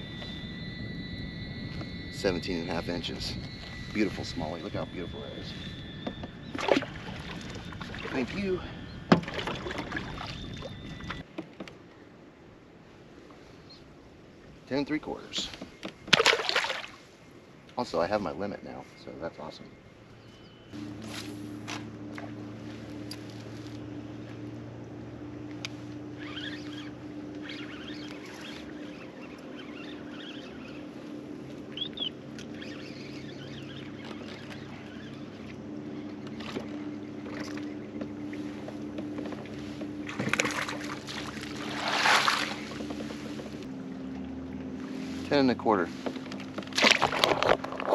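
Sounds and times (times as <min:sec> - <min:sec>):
electric motor humming: 0:00.0 - 0:09.7, 0:20.8 - 0:47.8
water lapping: 0:06.5 - 0:11.9, 0:15.2 - 0:19.0, 0:20.8 - 0:47.9
knocks against hull: 0:09.1 - 0:10.1.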